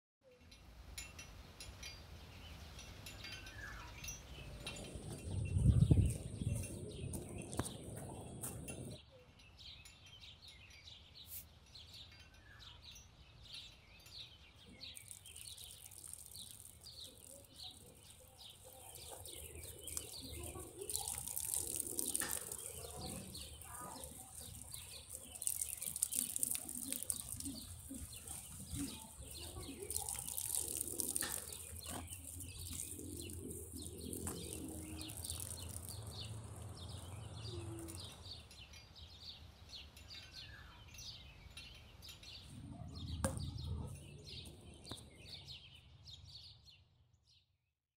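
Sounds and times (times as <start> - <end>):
small birds chirping: 1.4 - 47.5
water spraying from garden hose: 14.7 - 38.2.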